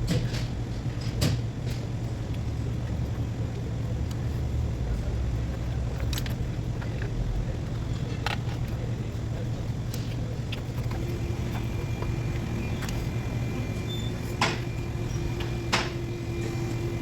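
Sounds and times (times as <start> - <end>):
car engine humming: 10.6 - 17.0.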